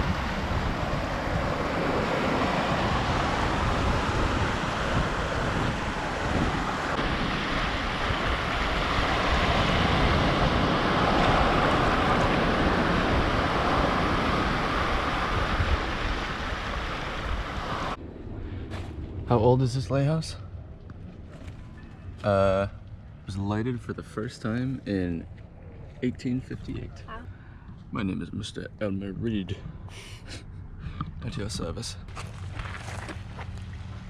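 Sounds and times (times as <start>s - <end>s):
surf washing onto beach: 0.0s - 18.0s
wind buffeting microphone: 0.0s - 31.7s.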